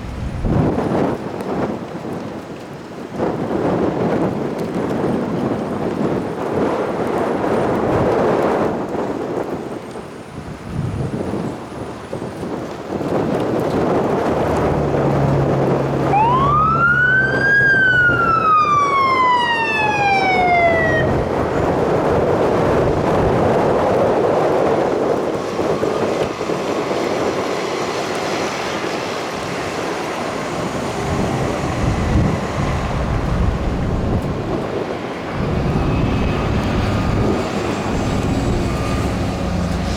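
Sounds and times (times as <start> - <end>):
truck engine rumble: 0.0 - 1.4, 13.6 - 39.9
road noise: 0.0 - 2.0, 6.2 - 39.9
fire truck siren wailing: 14.0 - 39.9.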